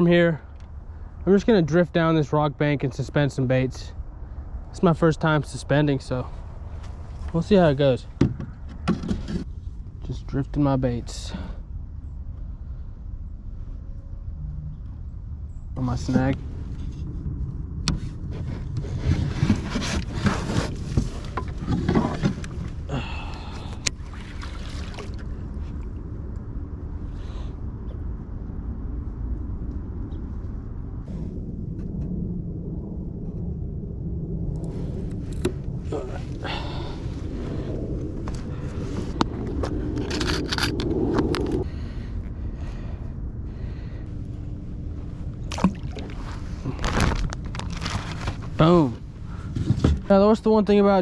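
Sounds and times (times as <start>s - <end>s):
steady low rumble: 0.0s - 51.0s
wind buffeting microphone: 0.0s - 51.0s
scraping and clicking on a kayak: 18.4s - 22.8s, 39.1s - 41.6s, 46.8s - 48.6s
rustling: 46.1s - 50.1s.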